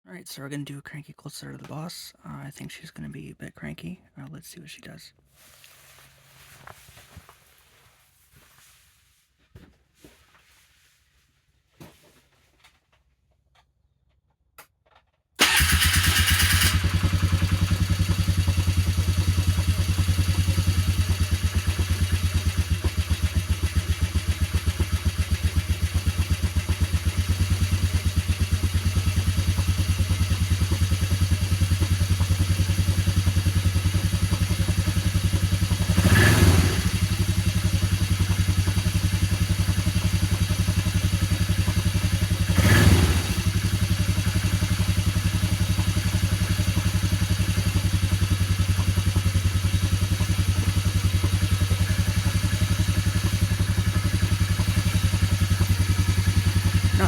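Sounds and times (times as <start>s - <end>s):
engine starting clicks: 15.4s - 17.9s
engine idling: 15.4s - 57.0s
engine revving: 15.4s - 57.0s.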